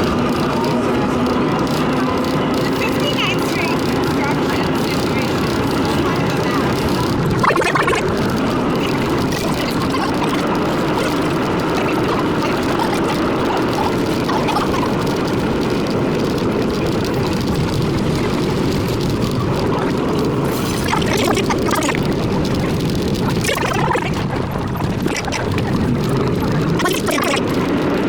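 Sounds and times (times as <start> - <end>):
subway car rumbling in tunnel: 0.0 - 7.4.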